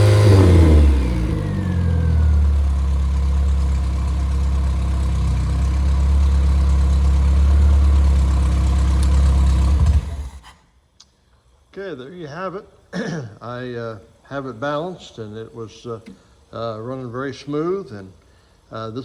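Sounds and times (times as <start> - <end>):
car engine idling: 0.0 - 10.4.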